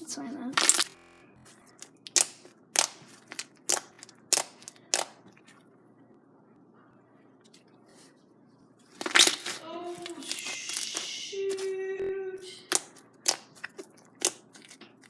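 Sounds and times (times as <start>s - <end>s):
slime crackling pops: 0.6s - 0.9s, 1.8s - 5.2s, 9.0s - 11.1s, 12.7s - 14.5s
faint slime handling: 1.7s - 5.7s, 7.5s - 11.8s, 12.6s - 15.0s.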